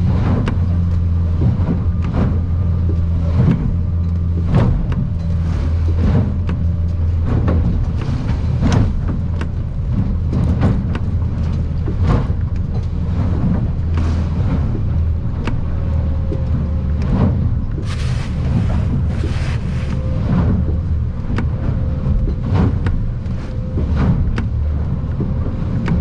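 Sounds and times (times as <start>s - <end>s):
outboard motor droning: 0.0s - 26.0s
wind: 0.0s - 26.0s
hull slamming into swells: 17.8s - 20.1s
spray hitting windshield: 17.8s - 20.1s.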